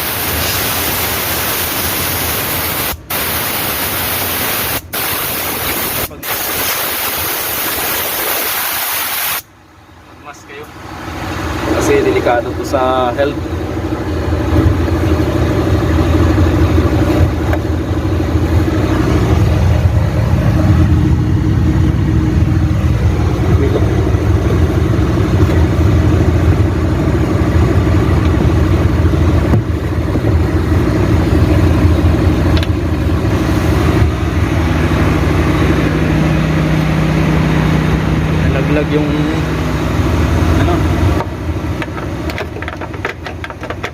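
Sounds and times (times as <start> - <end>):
large engine idling: 9.5 - 43.9
steady low drone: 9.6 - 42.3.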